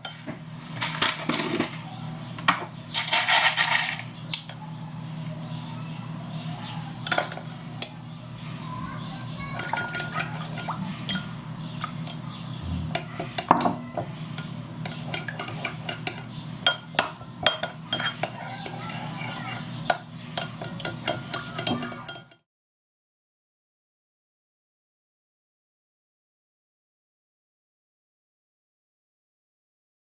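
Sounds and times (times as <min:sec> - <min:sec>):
cutlery clinking on dishes: 0:07.0 - 0:07.9, 0:14.4 - 0:22.4.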